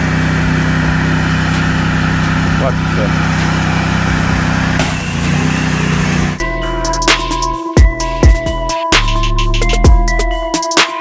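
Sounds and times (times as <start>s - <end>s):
motor engine running: 0.0s - 8.5s
electronic music with a beat: 5.9s - 11.0s.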